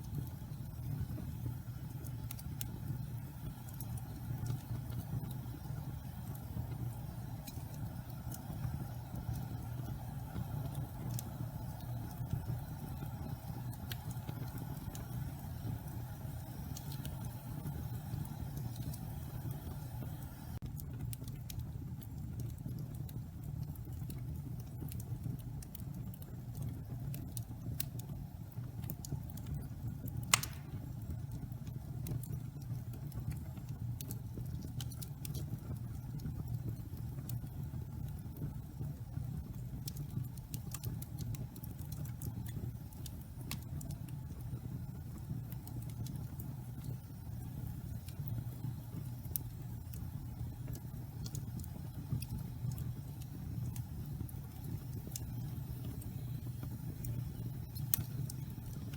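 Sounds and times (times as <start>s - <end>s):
fire crackling: 0.0s - 58.9s
wood fire rumbling: 0.0s - 58.9s
log popping: 30.3s - 30.9s.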